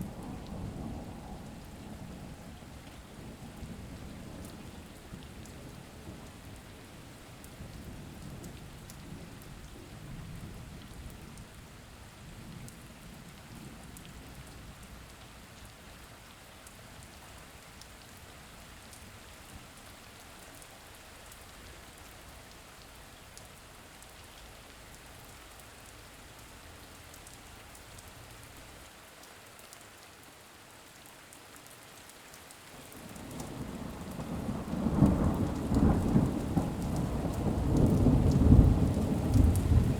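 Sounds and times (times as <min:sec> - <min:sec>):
thunder rumbling: 0:00.0 - 0:05.2, 0:33.3 - 0:39.9
steady rain falling: 0:00.0 - 0:39.9.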